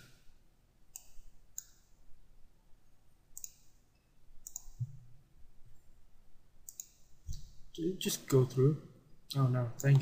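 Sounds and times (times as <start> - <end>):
computer mouse clicking: 0.9 - 1.9, 3.3 - 3.8, 4.4 - 5.0, 6.6 - 7.5.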